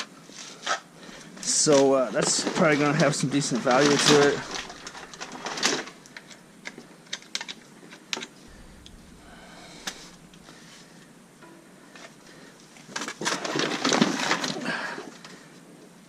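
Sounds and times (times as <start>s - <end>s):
rattling and rustling: 3.6s - 6.0s.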